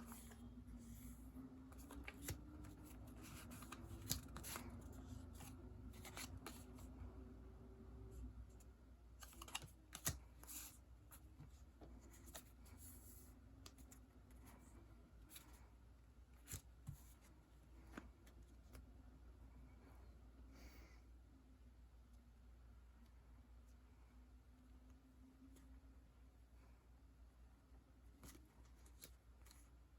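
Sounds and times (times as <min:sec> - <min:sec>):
low room hum: 0:00.0 - 0:29.9.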